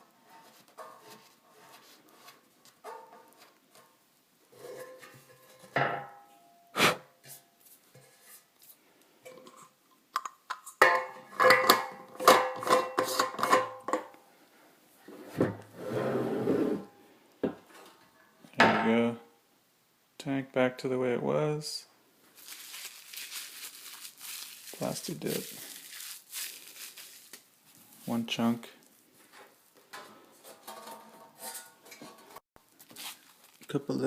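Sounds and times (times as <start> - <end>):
rough tearing rub: 22.4 - 28.2, 32.8 - 33.6
rubber coating peeling crackles: 22.4 - 28.2, 32.7 - 34.0.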